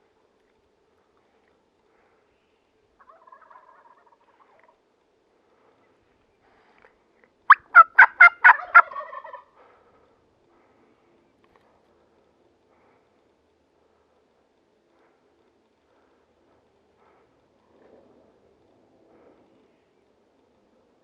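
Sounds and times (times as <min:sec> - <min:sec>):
turkey gobbling: 0:03.0 - 0:04.8, 0:07.5 - 0:09.5.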